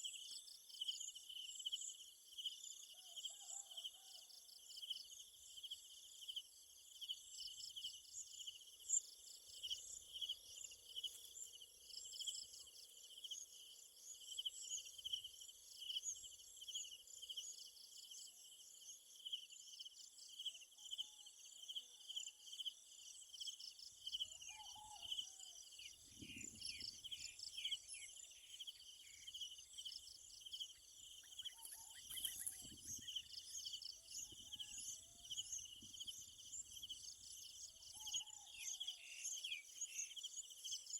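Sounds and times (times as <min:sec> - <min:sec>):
bird chirps: 0:24.2 - 0:40.9
insects pulsing trill: 0:25.8 - 0:40.9.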